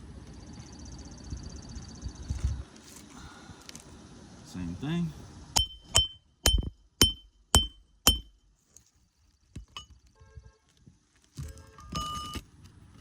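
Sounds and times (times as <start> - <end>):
hammer striking metal tool: 5.6 - 8.4.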